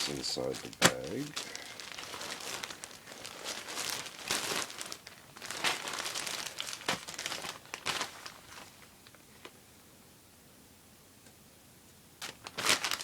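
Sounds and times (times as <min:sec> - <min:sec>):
plastic bags crinkling: 0:00.0 - 0:09.2, 0:12.2 - 0:13.0.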